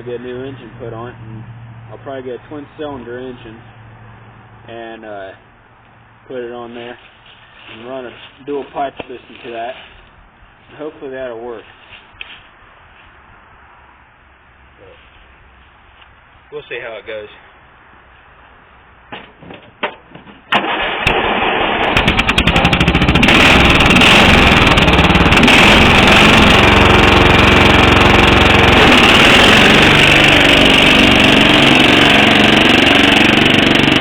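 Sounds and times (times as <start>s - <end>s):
engine cranking clicks: 20.5s - 34.0s
lawn mower engine running: 20.5s - 34.0s.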